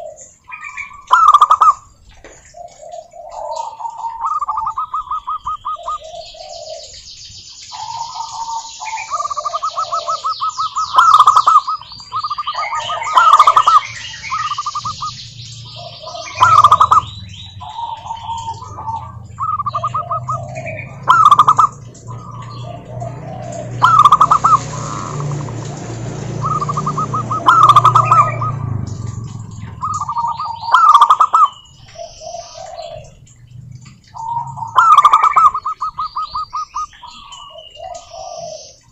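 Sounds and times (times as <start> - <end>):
doves cooing: 0.0 - 38.9
small birds chirping: 0.0 - 38.9
low hum: 13.5 - 30.9.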